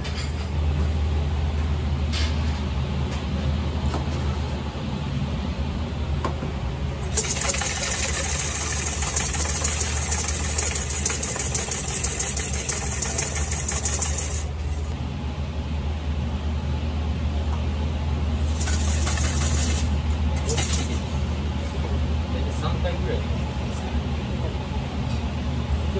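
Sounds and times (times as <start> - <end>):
steady low hum: 0.0 - 25.9
whisk scraping metal bowl: 7.1 - 14.9, 18.5 - 19.9.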